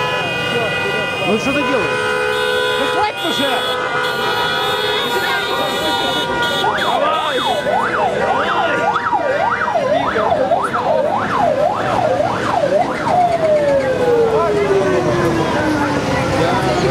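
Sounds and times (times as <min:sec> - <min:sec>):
siren yelping and wailing: 0:06.3 - 0:16.4.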